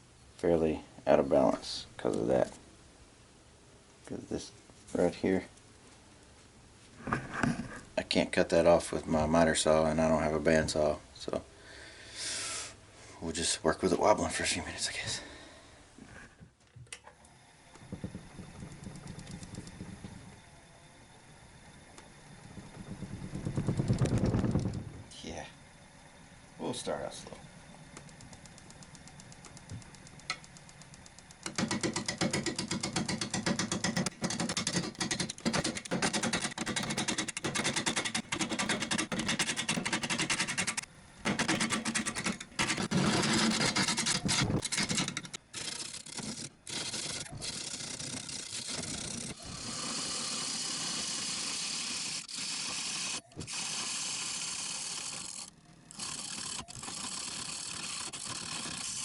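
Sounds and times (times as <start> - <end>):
wood lathe turning: 17.7 - 20.4, 28.0 - 59.0
turning tool cutting wood: 28.6 - 59.0.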